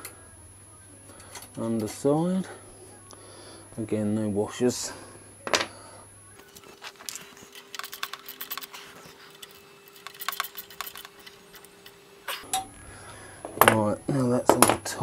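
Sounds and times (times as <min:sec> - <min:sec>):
faint steady hum: 0:00.0 - 0:15.0
ratchet clicking: 0:09.5 - 0:11.3.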